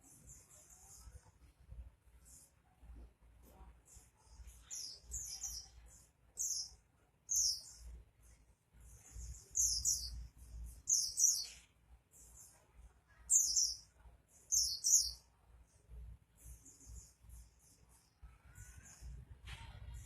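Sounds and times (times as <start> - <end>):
bird twittering: 6.4 - 7.8, 9.2 - 11.6, 13.3 - 13.8, 14.4 - 15.2.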